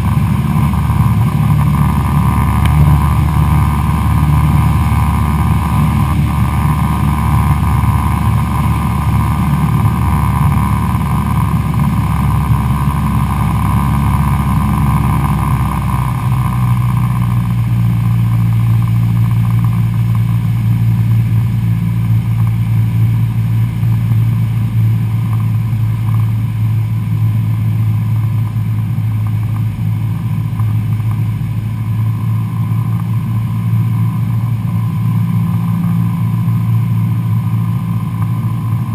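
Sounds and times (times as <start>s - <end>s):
airplane engine and propeller droning: 0.0s - 38.9s.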